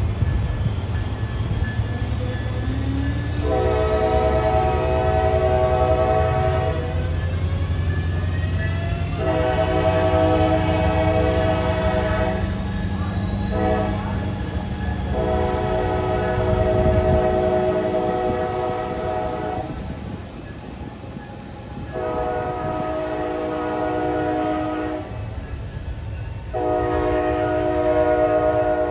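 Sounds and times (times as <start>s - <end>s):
train air horn blasts: 3.4s - 7.1s, 9.1s - 19.9s, 21.8s - 25.4s, 26.5s - 28.9s.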